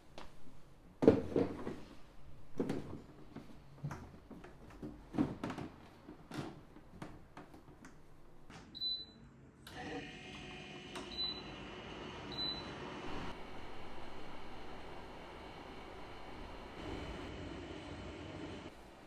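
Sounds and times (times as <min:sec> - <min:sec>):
dehumidifier fan humming: 0:09.7 - 0:19.0.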